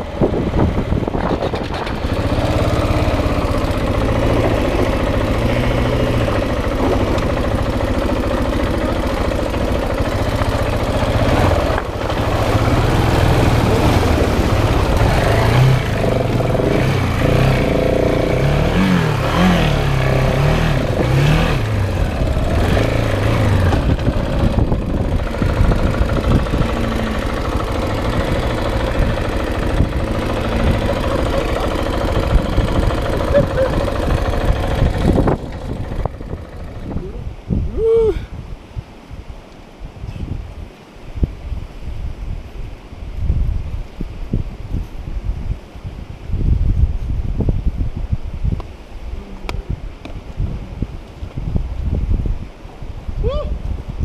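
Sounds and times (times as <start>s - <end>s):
motorcycle engine revving: 0.0s - 37.3s.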